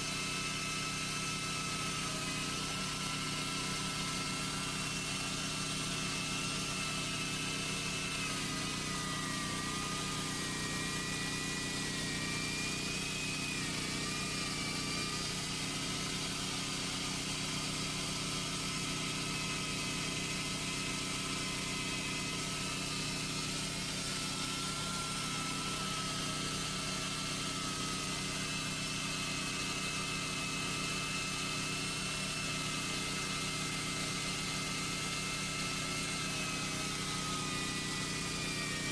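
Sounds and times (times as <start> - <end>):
chainsaw running: 0.0 - 38.9.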